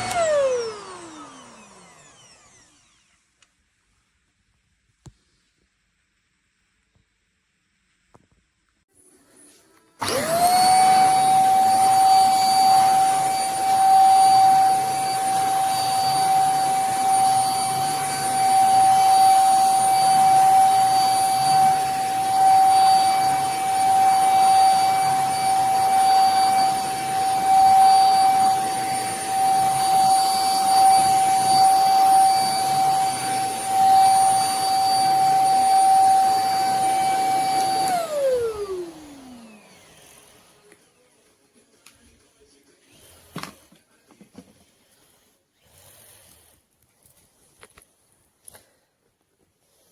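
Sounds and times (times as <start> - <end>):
vacuum motor whining: 0.0 - 3.2, 10.0 - 41.0.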